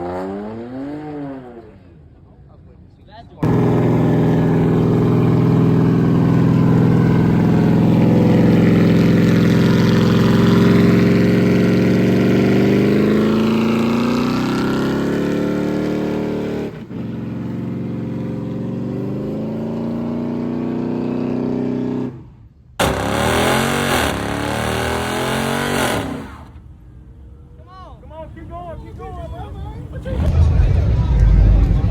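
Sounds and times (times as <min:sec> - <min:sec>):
car engine revving: 0:03.4 - 0:26.5.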